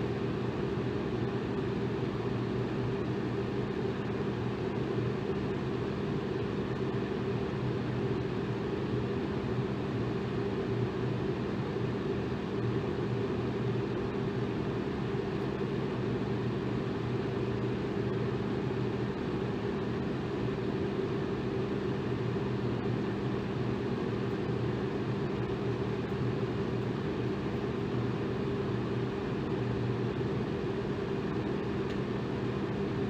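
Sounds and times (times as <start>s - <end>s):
electric fan air rush: 0.0s - 8.7s.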